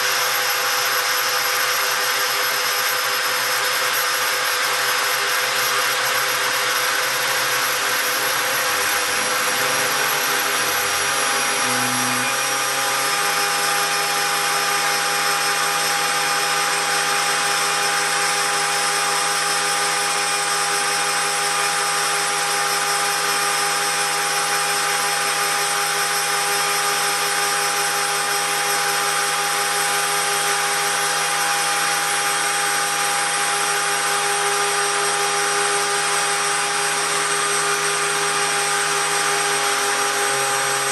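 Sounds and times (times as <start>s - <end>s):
milling spindle whining: 0.0s - 40.9s
low motor tones: 5.0s - 17.5s, 37.0s - 40.9s.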